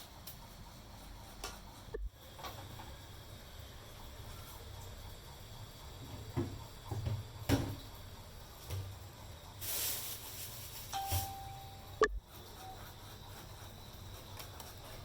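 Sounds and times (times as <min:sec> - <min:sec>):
kitchen knocks and clatters: 0:06.1 - 0:07.9
short beep tone: 0:11.0 - 0:12.2.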